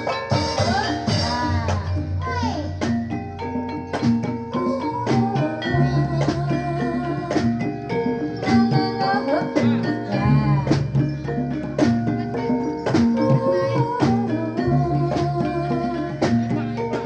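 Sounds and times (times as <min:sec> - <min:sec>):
drum strokes: 0:00.0 - 0:17.0
metallophones ringing: 0:00.0 - 0:17.0.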